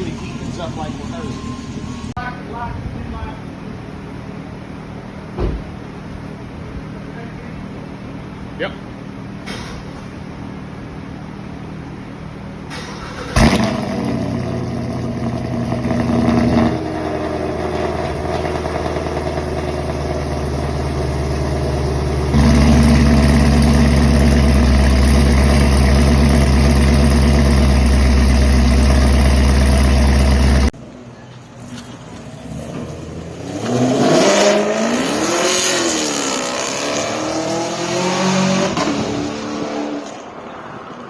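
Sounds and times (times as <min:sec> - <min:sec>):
vee eight engine revving: 0:12.7 - 0:30.7.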